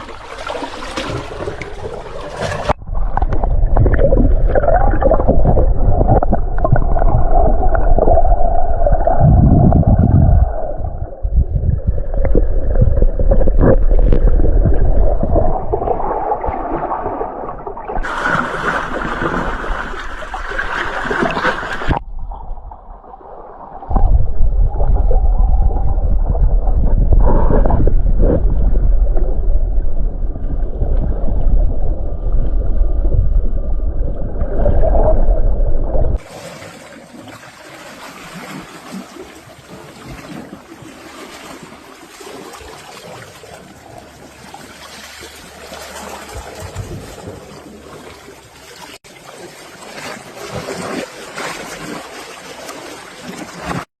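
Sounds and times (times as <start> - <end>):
wind rumble on microphone: 2.7 - 18.0, 21.8 - 36.3.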